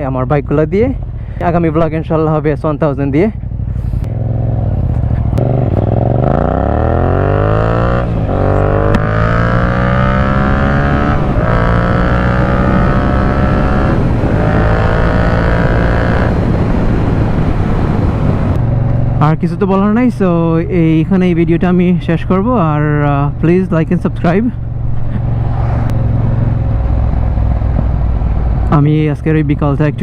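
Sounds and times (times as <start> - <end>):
motorcycle engine accelerating: 3.0 - 19.9, 24.0 - 28.8.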